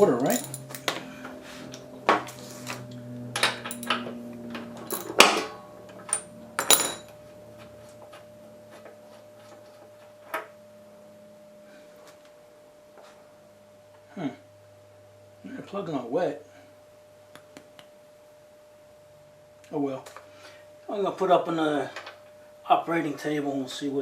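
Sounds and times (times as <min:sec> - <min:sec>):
metal hand tools clinking: 0:00.0 - 0:00.9, 0:03.6 - 0:04.0, 0:04.9 - 0:05.3, 0:06.1 - 0:07.1.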